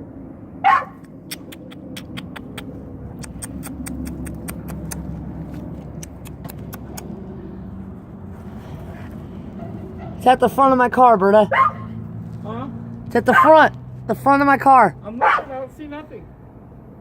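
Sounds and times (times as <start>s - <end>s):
dog yelping: 0.6s - 1.1s, 11.5s - 12.0s, 13.3s - 13.6s, 15.2s - 15.5s
sharp clicks: 1.0s - 5.1s, 5.9s - 7.1s.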